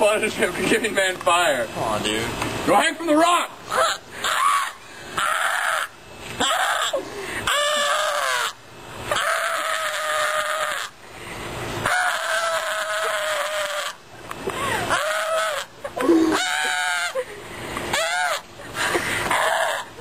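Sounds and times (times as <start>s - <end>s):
person crying out: 6.4s - 8.5s, 11.9s - 14.0s, 14.6s - 17.3s, 17.9s - 18.4s.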